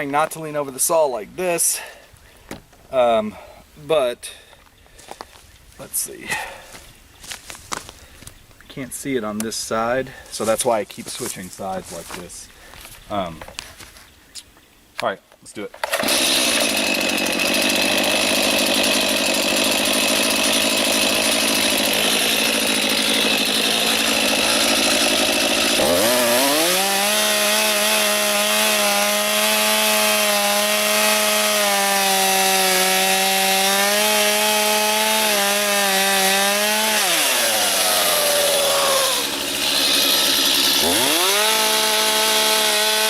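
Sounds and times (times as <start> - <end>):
chainsaw cutting wood: 15.8 - 43.0.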